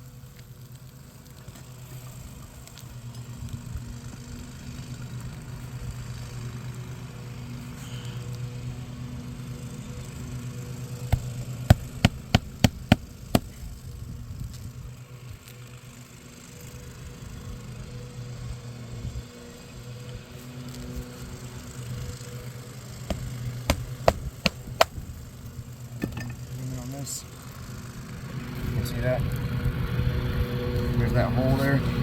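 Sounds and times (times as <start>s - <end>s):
hammer nailing into roof shingles: 11.1s - 13.6s, 23.1s - 25.0s.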